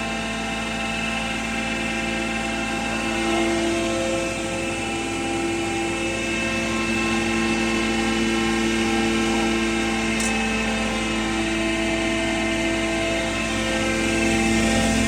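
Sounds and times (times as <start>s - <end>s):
grinding mill running: 0.0s - 15.0s.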